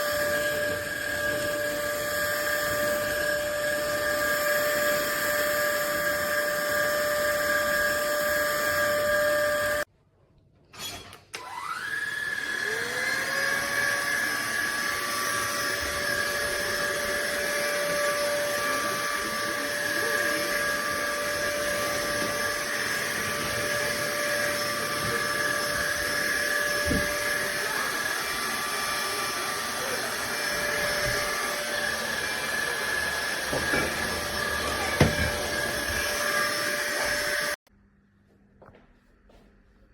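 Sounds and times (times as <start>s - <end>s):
vacuum motor whine: 0.0s - 9.9s, 11.4s - 37.6s.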